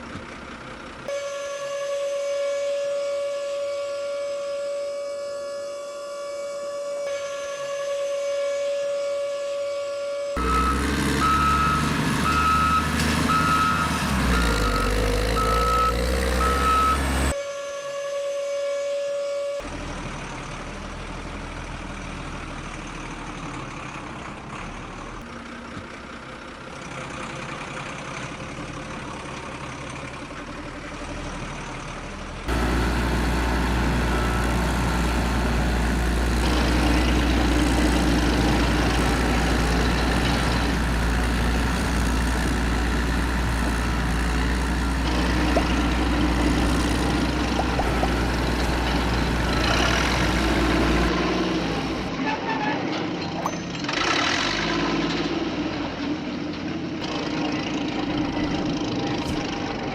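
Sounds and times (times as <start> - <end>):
truck engine drone: 0.0 - 8.1, 10.2 - 17.4, 19.6 - 59.9
truck reversing beeper: 1.1 - 17.4, 32.5 - 52.1.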